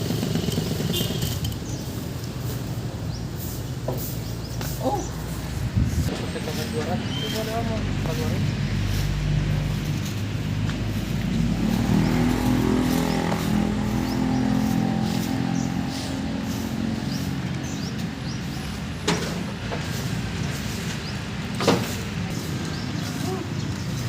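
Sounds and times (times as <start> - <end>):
engine running: 0.0 - 1.8, 8.0 - 24.0.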